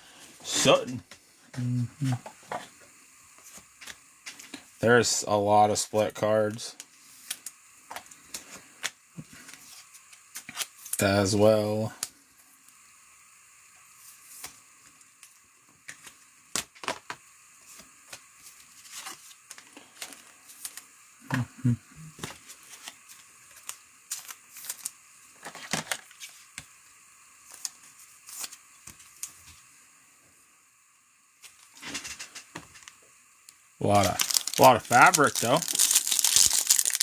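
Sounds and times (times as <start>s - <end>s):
cards being flipped through: 7.2s - 11.0s, 17.7s - 20.9s, 22.2s - 26.7s, 27.5s - 29.4s.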